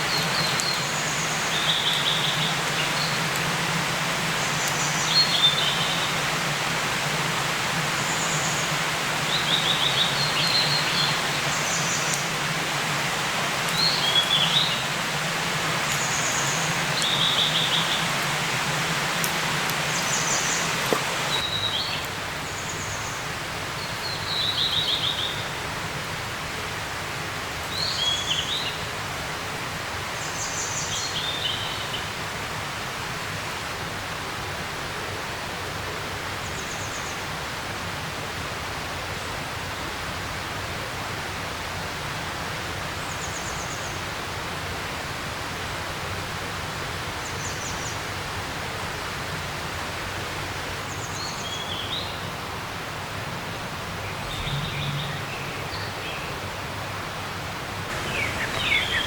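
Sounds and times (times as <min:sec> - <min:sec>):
small songbirds chirping: 0:00.0 - 0:03.6, 0:04.3 - 0:06.4, 0:08.0 - 0:25.6, 0:50.0 - 0:52.4, 0:53.4 - 0:56.9, 0:57.9 - 0:59.0
rushing outdoor hiss: 0:00.0 - 0:59.0.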